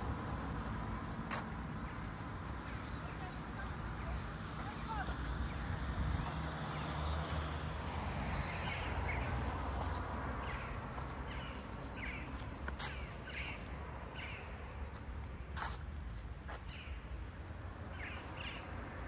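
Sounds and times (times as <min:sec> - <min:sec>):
birds harsh calls: 0:08.4 - 0:14.6.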